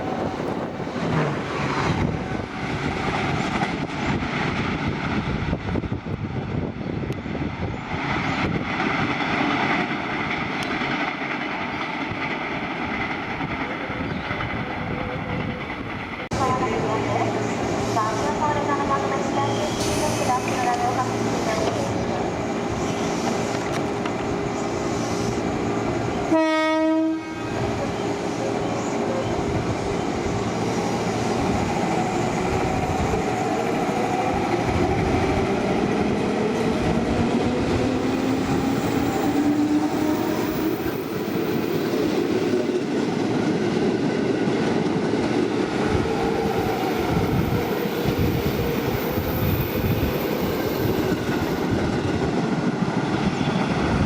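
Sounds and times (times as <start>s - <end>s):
locomotive horn: 26.3s - 27.7s
train whine rising in pitch: 36.5s - 43.3s.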